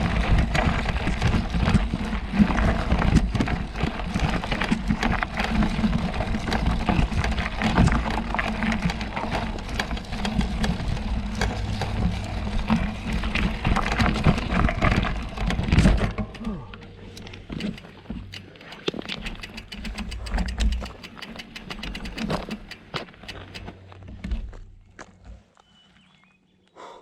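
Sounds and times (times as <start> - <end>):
low rumble: 0.0 - 20.9
bike tyres crunching over gravel: 0.0 - 26.2
sharp clicks: 16.7 - 23.8.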